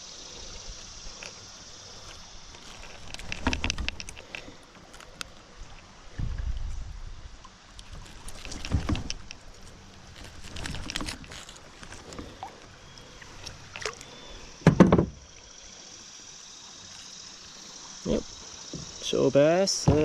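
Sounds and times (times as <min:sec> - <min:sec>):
loud hollow thump: 0:14.6 - 0:15.2, 0:19.8 - 0:20.0.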